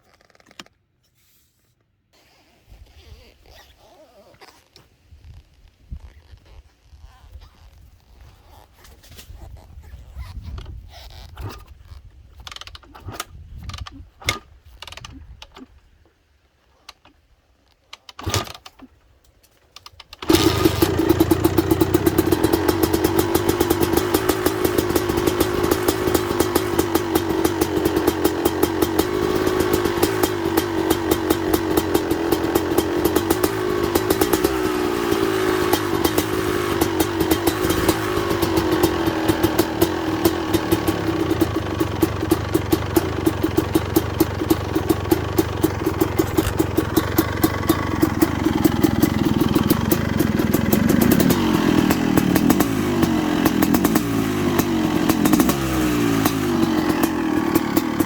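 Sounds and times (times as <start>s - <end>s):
two-stroke engine starting and idling: 18.1s - 18.9s, 19.8s - 58.0s.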